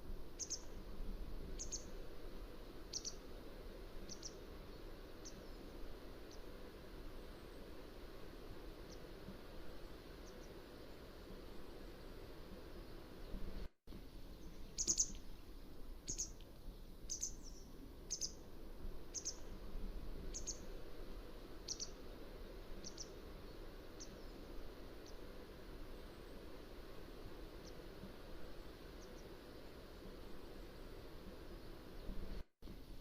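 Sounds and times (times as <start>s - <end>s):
low background hiss: 0.0s - 33.0s.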